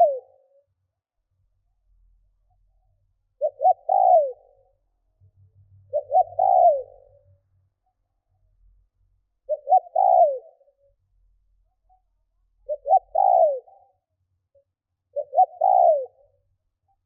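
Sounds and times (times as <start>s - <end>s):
dove cooing: 0.0s - 0.5s, 3.4s - 4.7s, 5.8s - 7.2s, 9.5s - 10.8s, 12.6s - 14.0s, 15.1s - 16.4s.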